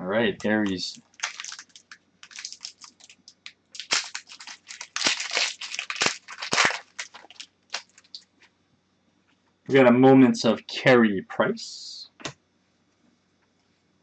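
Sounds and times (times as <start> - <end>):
cards and plastic crinkling: 0.4 - 8.2.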